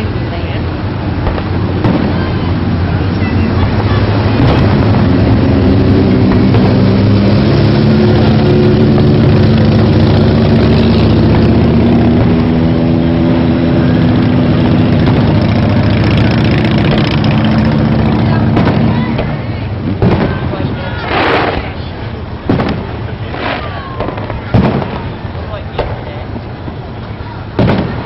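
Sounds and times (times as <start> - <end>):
motor engine running: 0.9 - 21.6.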